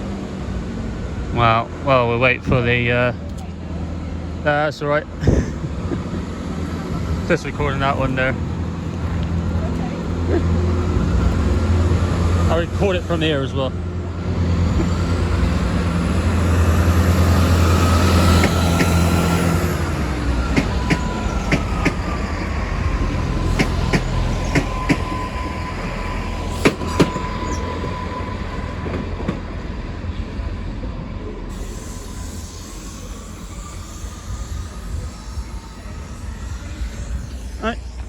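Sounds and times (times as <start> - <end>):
train rumble: 0.0 - 38.0
wheels squealing on rails: 0.1 - 38.0
wheels clacking over rail joints: 6.1 - 30.4.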